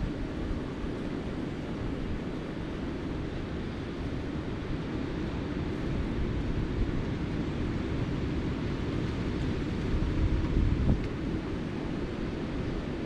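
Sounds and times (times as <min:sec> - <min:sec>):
wind on microphone: 0:05.6 - 0:13.0.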